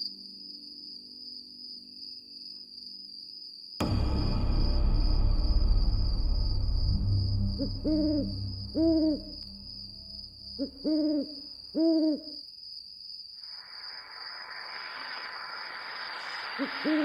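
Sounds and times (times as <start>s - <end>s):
steady high whine: 3.8s - 11.0s
owl hooting: 10.6s - 12.4s, 16.5s - 17.0s
wind hiss: 13.4s - 17.0s.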